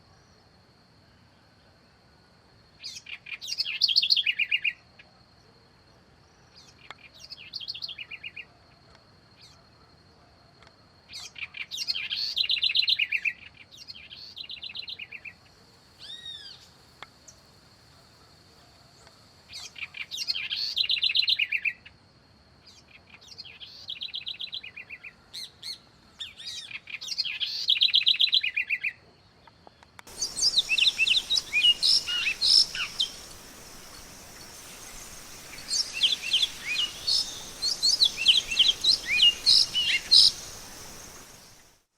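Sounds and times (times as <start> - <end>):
background hiss: 13.8 - 21.3, 29.9 - 41.9
bird chirping quickly: 30.1 - 41.8
faint high whine: 30.1 - 41.9
songbird singing: 30.1 - 41.9.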